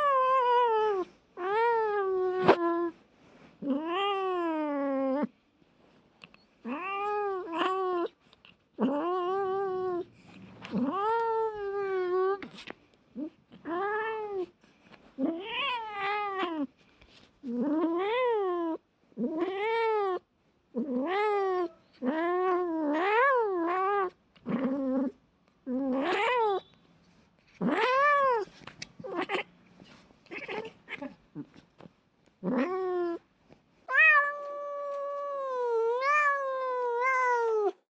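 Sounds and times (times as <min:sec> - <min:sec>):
cat meowing: 0:30.3 - 0:31.5, 0:33.9 - 0:37.8
cat yowling: 0:33.9 - 0:37.8.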